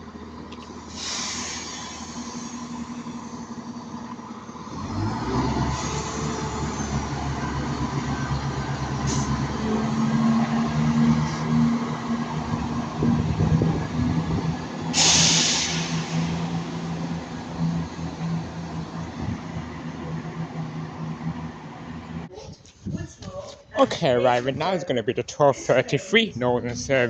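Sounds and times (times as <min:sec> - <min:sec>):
diesel train engine droning: 0:00.0 - 0:22.3
loud hiss burst: 0:00.9 - 0:02.9, 0:14.9 - 0:17.0.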